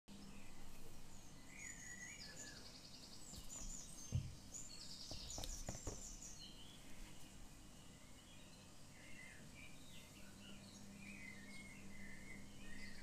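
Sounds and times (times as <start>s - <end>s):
low steady hiss: 0.1s - 13.0s
small birds chirping: 0.1s - 13.0s
soft thump: 3.3s - 4.4s, 5.1s - 6.2s.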